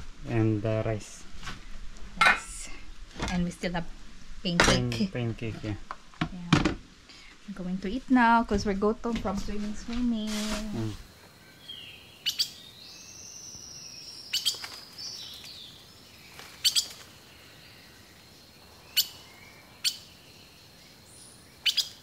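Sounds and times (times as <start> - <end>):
sharp bird chirps: 11.5 - 18.1, 18.7 - 22.0.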